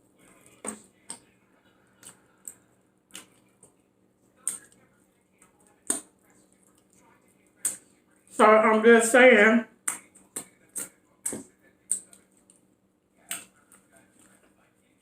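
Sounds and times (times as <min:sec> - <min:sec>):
lip-smacking and chewing: 0:01.9 - 0:03.8, 0:04.4 - 0:07.9.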